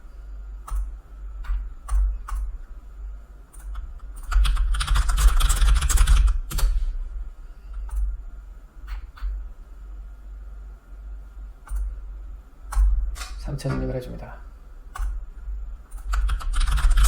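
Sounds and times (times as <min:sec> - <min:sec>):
computer keyboard typing: 0:03.6 - 0:06.7, 0:16.0 - 0:17.0.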